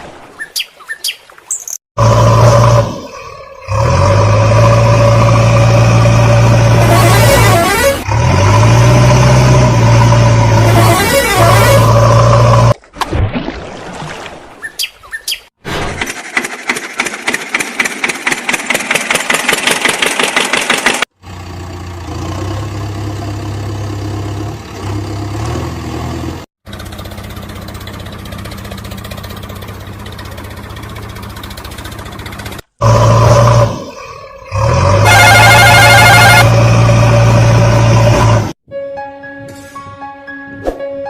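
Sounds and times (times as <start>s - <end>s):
engine cranking and catching: 15.7s - 38.6s
engine idling: 16.0s - 24.5s, 26.6s - 33.0s.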